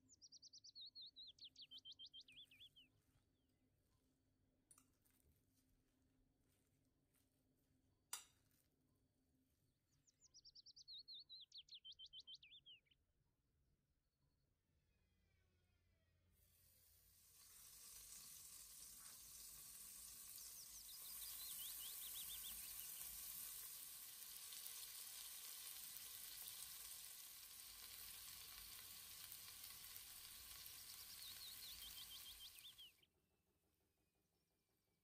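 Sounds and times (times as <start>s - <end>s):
meatballs sizzling in hot oil: 16.5s - 33.0s.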